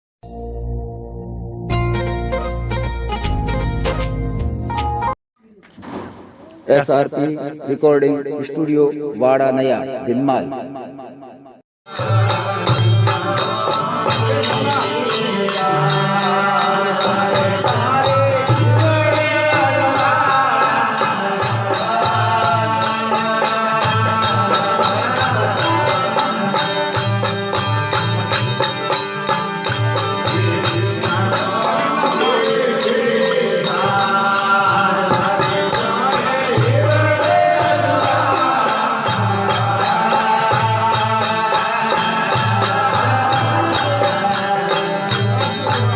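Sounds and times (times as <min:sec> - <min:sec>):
rhythmic percussion: 0:11.8 - 0:45.9
devotional folk music: 0:11.9 - 0:45.9
jingling cymbals: 0:11.9 - 0:45.9.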